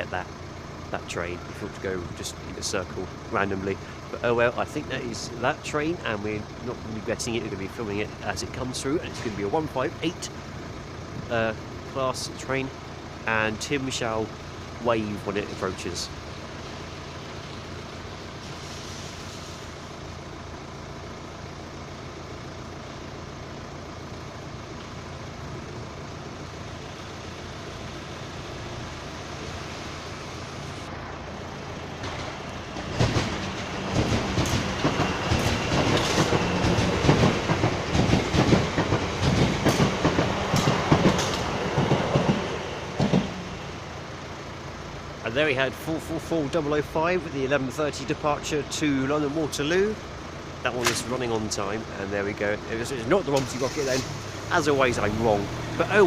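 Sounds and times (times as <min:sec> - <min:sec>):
electric train passing: 0:26.6 - 0:44.8
train wheels clacking over rail joints: 0:32.0 - 0:43.6.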